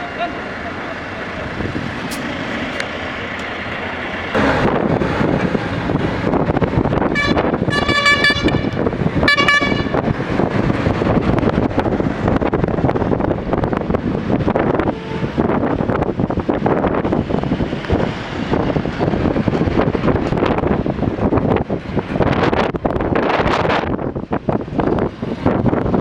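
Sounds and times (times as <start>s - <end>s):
heavy diesel machinery running: 0.0s - 26.0s
vehicle horn honking: 7.1s - 10.0s, 14.8s - 15.5s.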